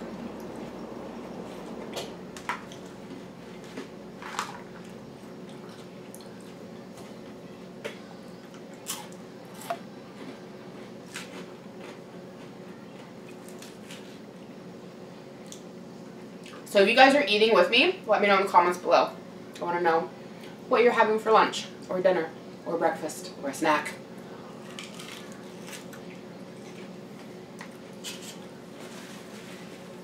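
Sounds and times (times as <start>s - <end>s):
chewing and crunching lettuce: 8.4s - 14.5s, 24.2s - 29.8s.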